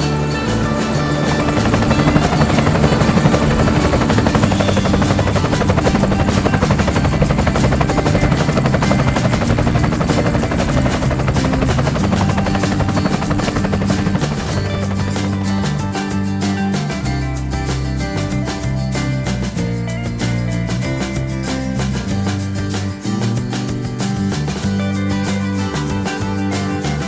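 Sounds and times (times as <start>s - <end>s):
background music: 0.0s - 27.0s
helicopter rotor chopping: 0.6s - 17.1s.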